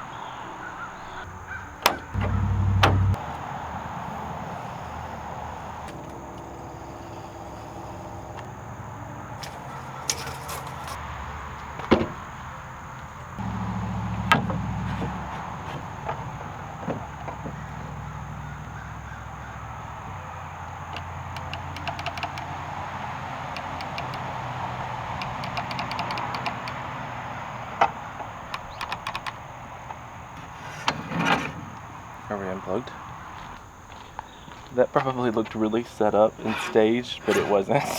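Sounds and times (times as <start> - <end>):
low motor hum: 1.5 - 10.1, 13.4 - 26.0
sharp knocks: 1.8 - 3.2, 13.4 - 17.7.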